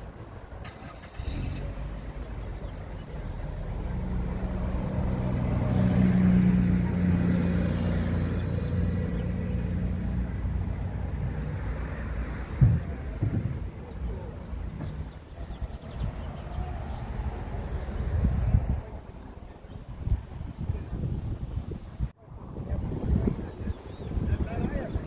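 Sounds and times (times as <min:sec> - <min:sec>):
vehicle engine passing by: 0:00.6 - 0:19.4
low thump: 0:12.5 - 0:13.8.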